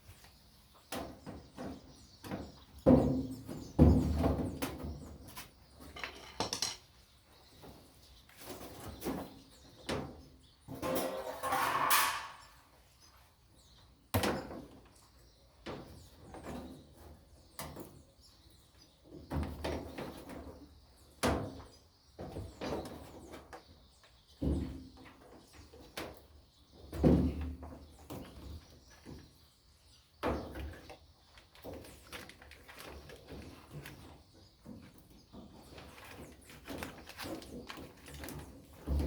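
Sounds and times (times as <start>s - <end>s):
washing machine parts knocking: 5.9s - 6.8s.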